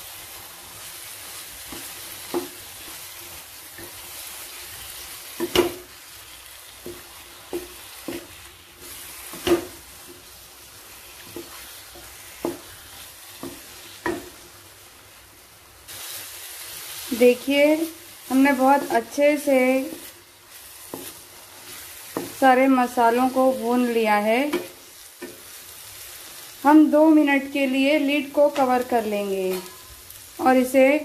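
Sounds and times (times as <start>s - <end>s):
chicken sizzling in a pan: 0.0s - 31.0s
spatula knocking and scraping pan: 1.6s - 4.0s, 5.3s - 6.0s, 6.8s - 10.3s, 11.2s - 14.5s, 20.8s - 25.4s.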